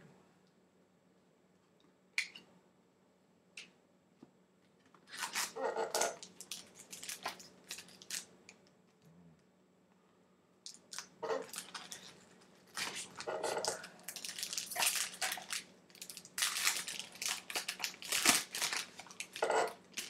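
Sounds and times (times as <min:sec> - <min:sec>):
foil wrapper crinkling and tearing: 0:05.1 - 0:08.3, 0:10.9 - 0:20.0.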